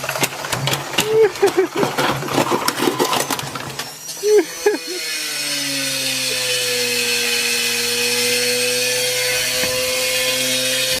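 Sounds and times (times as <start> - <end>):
washing machine spinning: 0.0 - 5.0.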